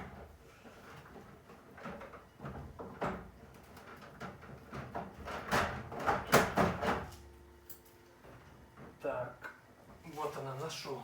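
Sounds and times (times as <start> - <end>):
objects knocking and clattering: 0.0 - 7.1.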